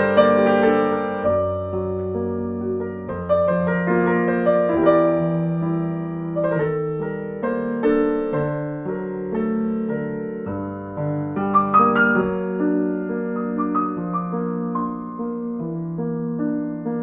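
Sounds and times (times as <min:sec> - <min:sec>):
slow soft piano music: 0:00.0 - 0:17.0.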